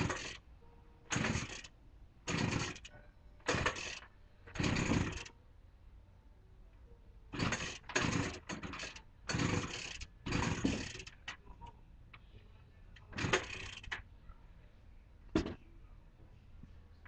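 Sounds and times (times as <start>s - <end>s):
string trimmer rope pulls: 2.3s - 2.9s, 7.4s - 11.1s.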